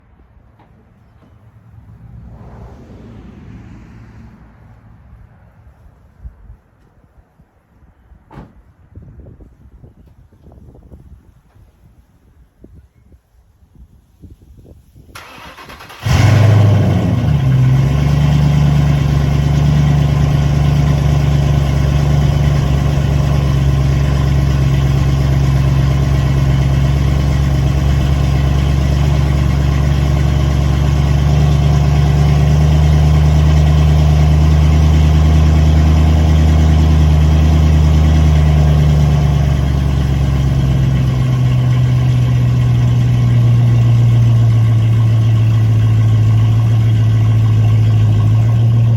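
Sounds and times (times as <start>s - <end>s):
car engine cranking: 15.2s - 48.9s
car engine idling: 15.2s - 48.9s.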